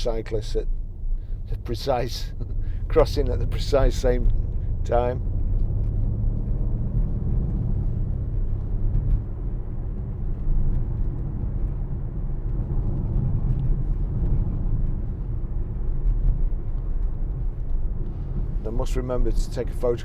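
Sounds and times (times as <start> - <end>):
car engine rumble: 0.0 - 20.0
road noise: 0.0 - 20.0.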